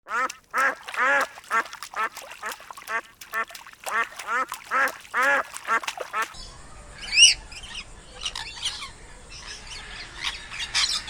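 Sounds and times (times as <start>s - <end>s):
duck quacking: 0.0s - 6.3s.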